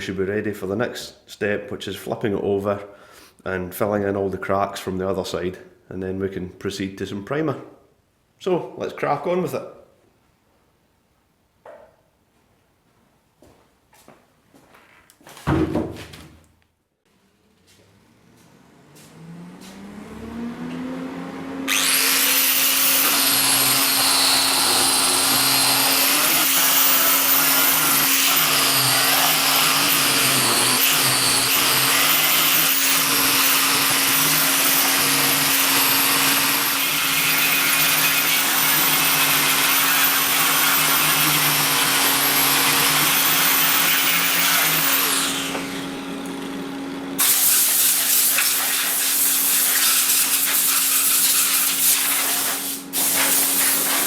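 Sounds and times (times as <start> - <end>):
high-pitched grinding whine: 18.1 - 48.5
angle grinder motor hum: 18.3 - 47.4.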